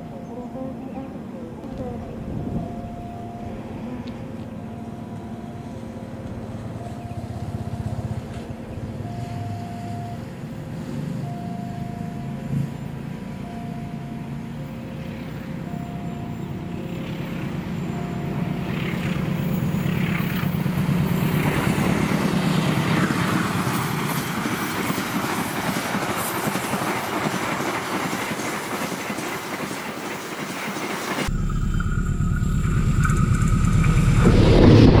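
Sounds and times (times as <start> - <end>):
diesel locomotive engine rumble: 0.0 - 35.0
train wheels rushing on rails: 16.4 - 31.3.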